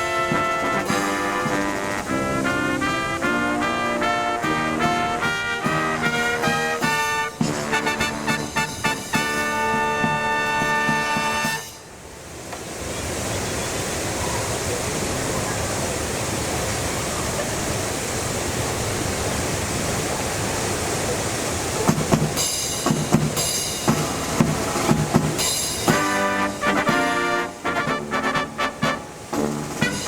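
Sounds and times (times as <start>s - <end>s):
brass band playing: 0.0s - 11.9s, 22.3s - 30.0s.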